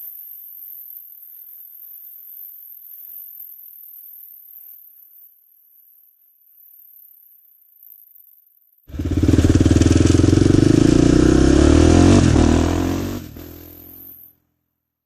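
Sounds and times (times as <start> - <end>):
motorbike engine running: 8.9 - 14.0.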